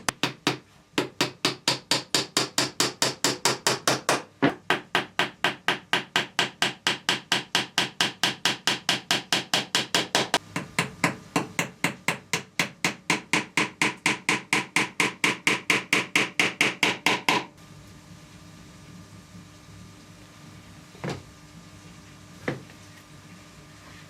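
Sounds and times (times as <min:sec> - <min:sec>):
fast hammer taps: 0:00.0 - 0:17.5.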